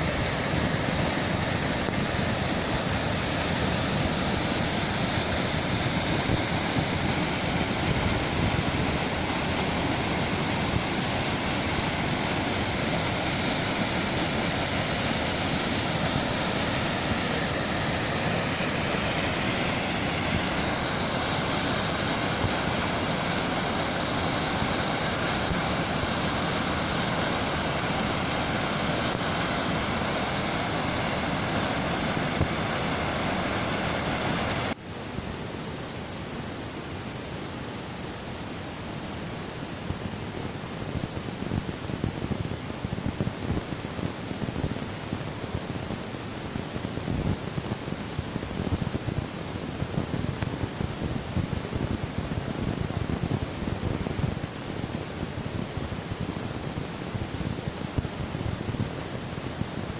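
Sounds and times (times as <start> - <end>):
waterfall rushing: 0.0 - 34.8.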